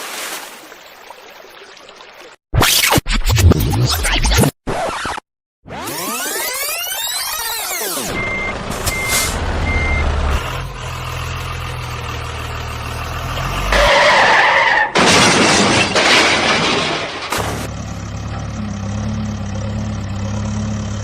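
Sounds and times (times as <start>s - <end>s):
truck reversing beeps: 6.3s - 12.1s
truck engine rumble: 8.1s - 14.9s, 15.6s - 21.0s.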